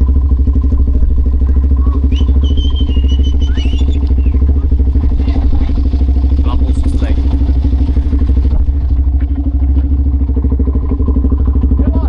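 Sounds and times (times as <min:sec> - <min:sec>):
atv engine running: 0:00.0 - 0:12.0
thin high whistling tone: 0:02.0 - 0:04.5.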